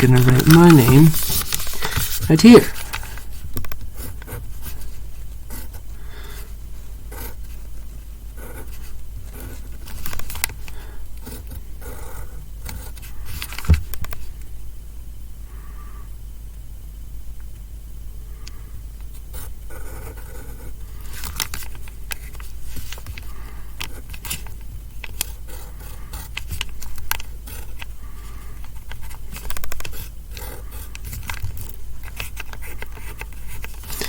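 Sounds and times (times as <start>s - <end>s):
pen scratching on paper: 0.0s - 2.8s, 19.3s - 20.7s, 25.3s - 27.8s, 29.0s - 31.2s.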